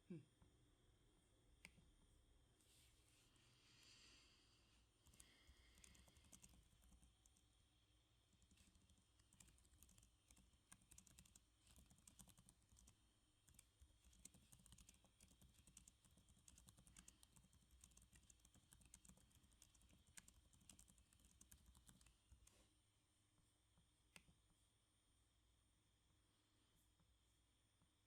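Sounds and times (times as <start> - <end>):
typing on computer keyboard: 5.0 - 7.5, 8.4 - 22.5.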